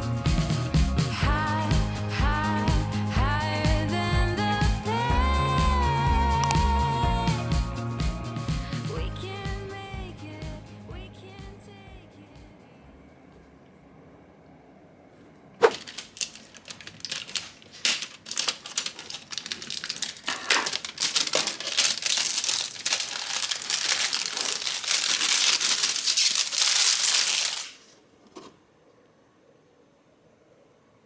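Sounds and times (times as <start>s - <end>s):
wrapper crinkling: 6.4s - 6.7s, 15.6s - 28.0s.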